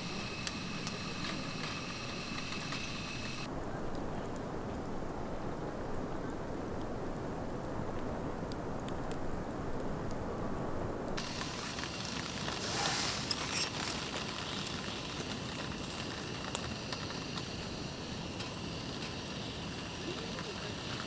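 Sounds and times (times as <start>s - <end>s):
bright hiss: 0.0s - 3.5s, 11.2s - 21.0s
campfire crackling and popping: 0.0s - 5.8s, 11.1s - 21.0s.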